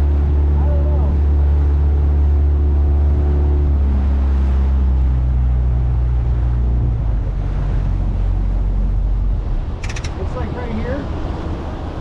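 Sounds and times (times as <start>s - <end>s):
motorboat engine running: 0.0s - 12.0s.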